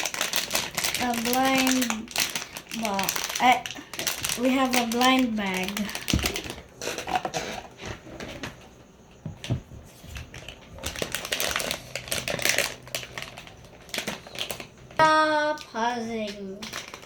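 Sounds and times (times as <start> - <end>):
plastic bag crinkling: 0.0 - 7.3, 10.1 - 15.0, 16.6 - 17.0.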